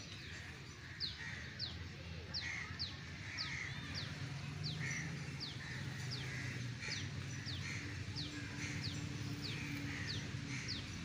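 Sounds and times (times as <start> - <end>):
harsh bird calls: 2.4 - 11.0.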